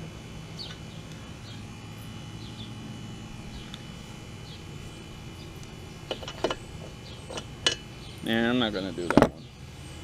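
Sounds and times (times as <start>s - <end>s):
low outdoor rumble: 0.0s - 10.0s
bird chirping: 2.3s - 2.8s, 4.4s - 4.7s, 5.3s - 8.4s.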